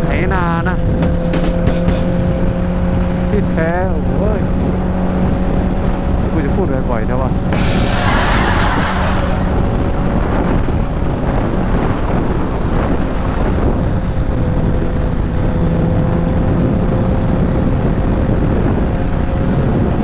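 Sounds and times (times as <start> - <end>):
wind buffeting microphone: 7.5 - 14.3.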